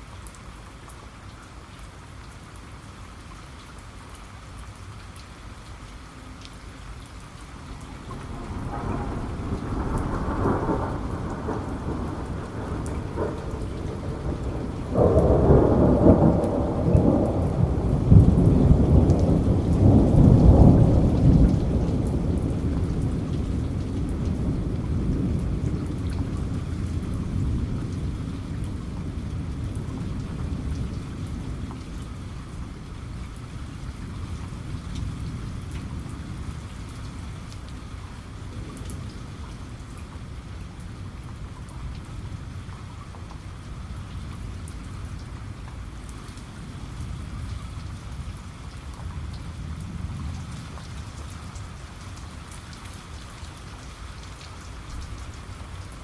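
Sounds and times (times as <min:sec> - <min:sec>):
heavy rain: 0:00.0 - 0:56.0
thunder rumbling: 0:07.6 - 0:37.5.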